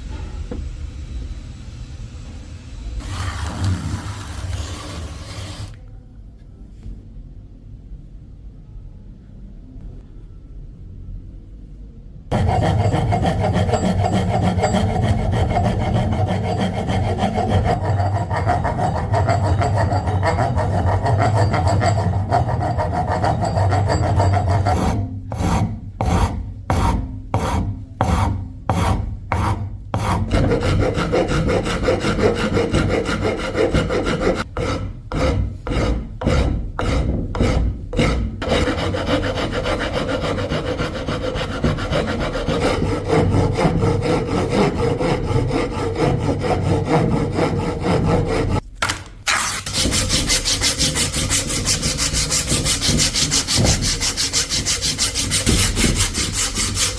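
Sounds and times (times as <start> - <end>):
hand rasp scraping wood: 3.0 - 5.8, 12.3 - 48.6, 49.3 - 56.9.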